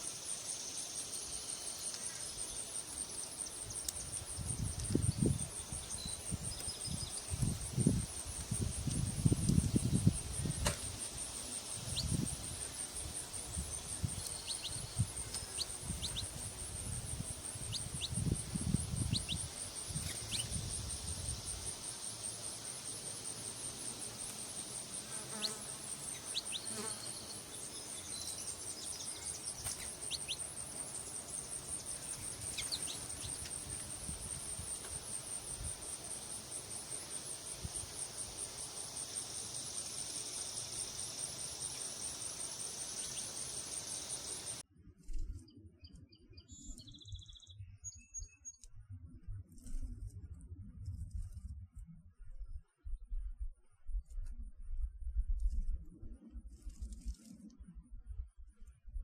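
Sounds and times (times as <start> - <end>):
insects trilling: 0.0 - 44.6
high bird chirps: 28.0 - 30.5.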